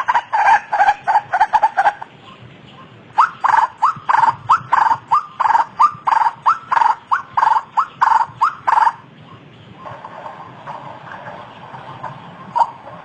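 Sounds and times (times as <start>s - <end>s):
waterhen harsh calls: 3.2s - 9.0s, 12.5s - 12.9s.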